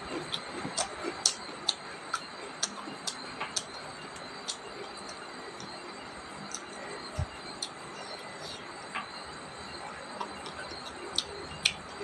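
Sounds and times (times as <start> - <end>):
chewing and mouth clicks: 0.0 - 5.8, 6.4 - 8.6, 10.1 - 12.0
high background hum: 0.0 - 12.0.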